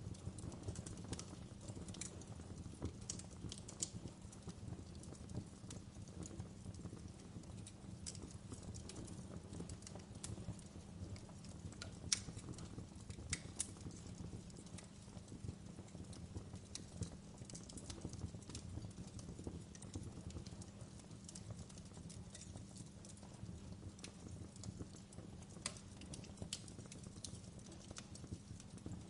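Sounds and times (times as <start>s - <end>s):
fire popping and snapping: 0.0s - 29.0s
low rumble of burning logs: 0.0s - 29.0s.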